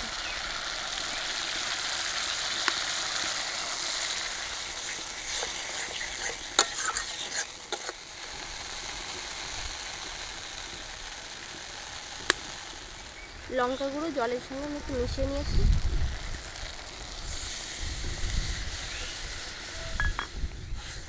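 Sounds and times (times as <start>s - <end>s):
paste sizzling in a pan: 0.0s - 21.0s
metal spatula scraping a pan: 4.7s - 8.0s.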